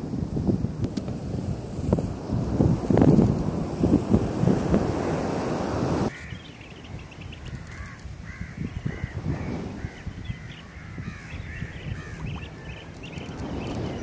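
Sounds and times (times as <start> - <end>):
birds calling: 6.1 - 14.0.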